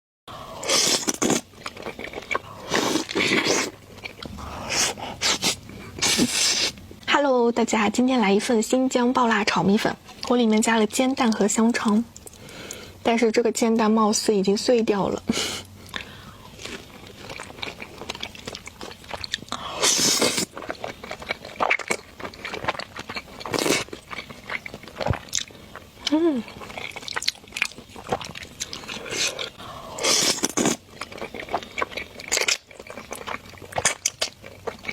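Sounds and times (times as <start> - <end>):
person chewing food: 0.5 - 7.1, 11.2 - 12.9, 15.8 - 34.9.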